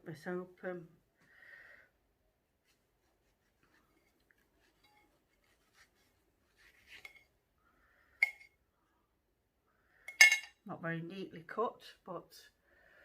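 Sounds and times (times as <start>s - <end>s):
rustle of handling: 2.6s - 7.4s
sharp clink: 10.1s - 10.6s.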